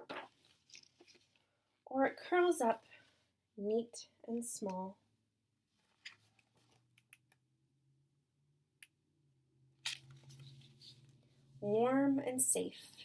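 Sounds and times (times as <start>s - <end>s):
book pages rustling: 0.0s - 1.4s, 9.8s - 11.2s.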